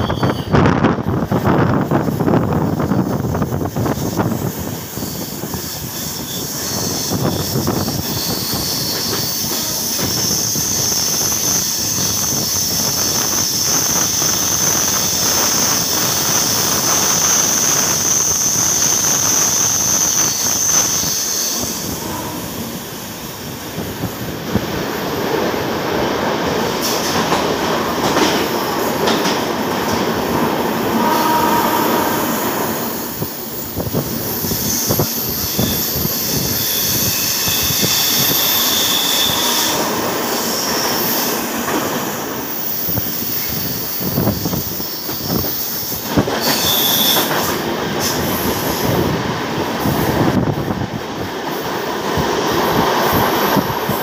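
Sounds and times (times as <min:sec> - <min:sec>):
high-pitched wheel squeal: 0:00.0 - 0:00.8, 0:04.9 - 0:15.2, 0:16.0 - 0:22.6, 0:34.3 - 0:41.4, 0:46.4 - 0:47.4
passenger train on rails: 0:00.0 - 0:54.0.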